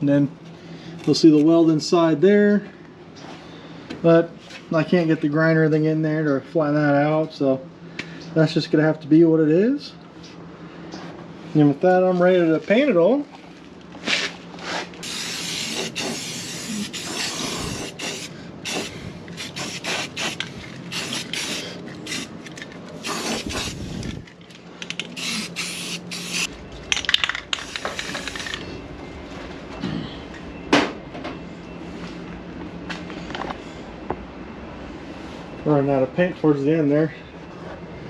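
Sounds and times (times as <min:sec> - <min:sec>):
steady low hum: 0:00.0 - 0:38.0
spray paint can hissing: 0:15.0 - 0:24.2, 0:24.9 - 0:26.5.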